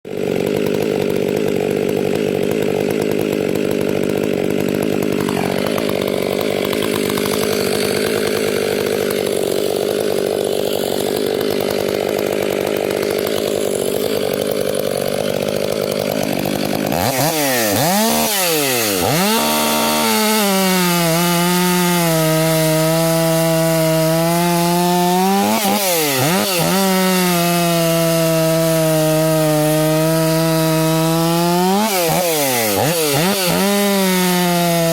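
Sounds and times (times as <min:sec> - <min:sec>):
chainsaw running at high revs: 0:00.0 - 0:34.9.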